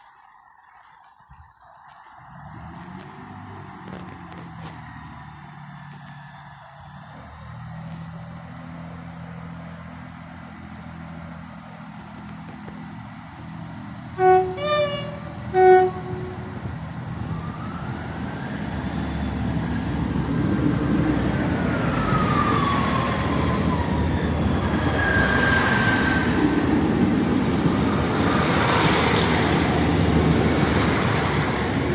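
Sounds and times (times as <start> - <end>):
train rumbling through station: 0.0 - 31.9
train horn: 14.2 - 16.6
high metallic squeals: 24.6 - 26.6.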